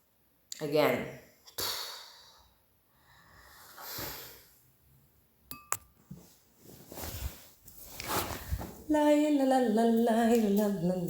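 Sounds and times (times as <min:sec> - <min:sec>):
glass clinks with bright ring: 0:05.5 - 0:06.0.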